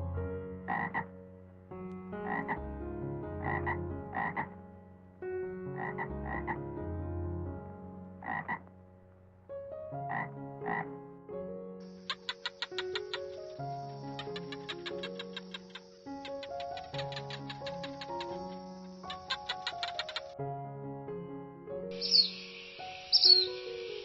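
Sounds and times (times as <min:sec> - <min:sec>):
background music: 0:00.0 - 0:24.0
croaking animal calls: 0:00.7 - 0:01.1, 0:02.2 - 0:02.6, 0:03.4 - 0:04.6, 0:05.8 - 0:06.6, 0:08.2 - 0:08.7, 0:10.1 - 0:10.9, 0:12.0 - 0:20.4, 0:22.0 - 0:24.0.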